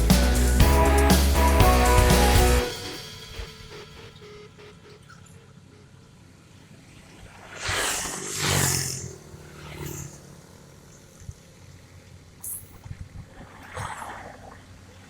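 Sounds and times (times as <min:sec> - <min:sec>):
loud rushing noise: 0:00.0 - 0:04.7
excavator engine running: 0:00.0 - 0:05.4.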